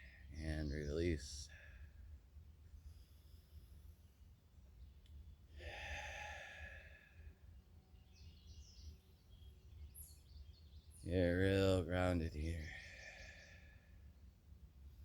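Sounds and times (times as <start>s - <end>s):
person exhaling: 5.6s - 7.2s.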